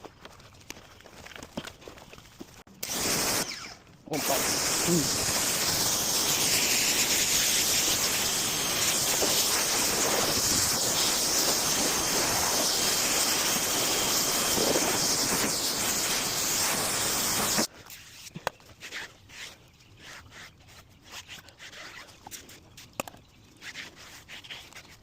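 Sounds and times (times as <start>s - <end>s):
tool rushing hiss: 2.8s - 17.7s
faint clicks and rubs: 17.8s - 25.0s.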